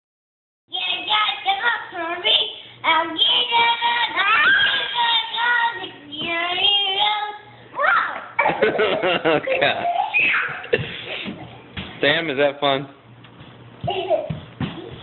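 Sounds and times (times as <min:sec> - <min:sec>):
child singing: 0:00.7 - 0:07.5.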